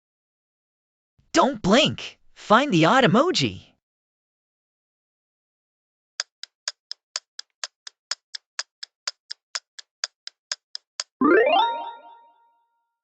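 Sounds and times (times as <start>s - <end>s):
clock-like ticks: 6.2s - 11.2s.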